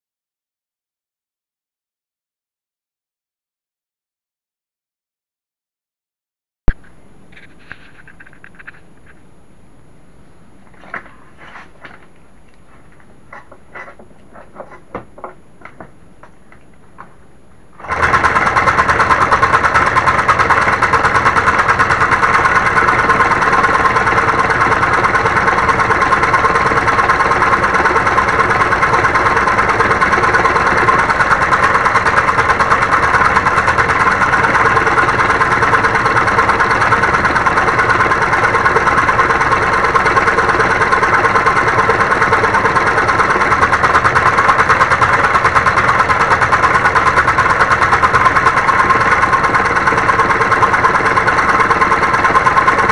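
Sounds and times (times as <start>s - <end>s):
scroll saw cutting wood: 17.8s - 52.9s.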